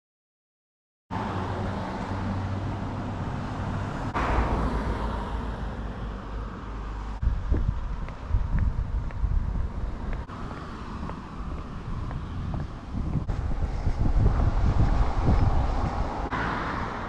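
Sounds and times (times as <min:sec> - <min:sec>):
road noise: 0:01.1 - 0:17.0.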